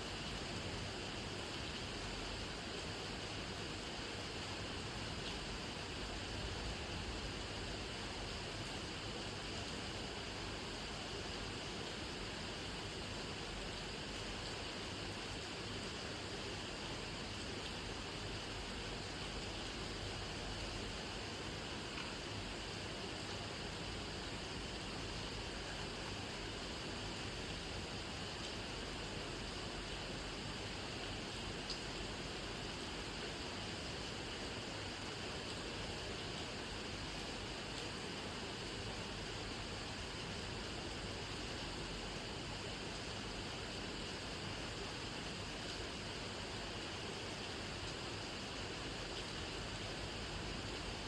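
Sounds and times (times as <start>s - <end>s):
steady rain: 0.0s - 51.0s.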